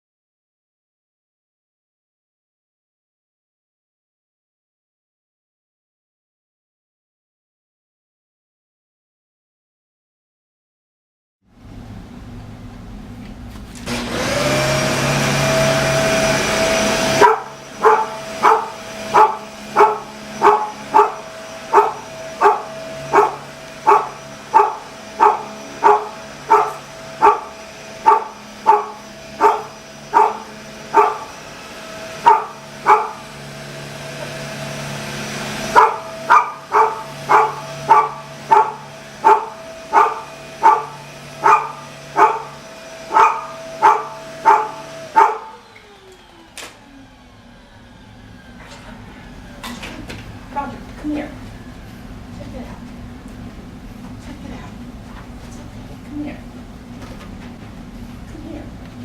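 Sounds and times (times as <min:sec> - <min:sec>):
vacuum cleaner motor running: 0:13.4 - 0:54.2
dog barking: 0:17.0 - 0:31.4, 0:32.2 - 0:33.4, 0:35.7 - 0:45.6.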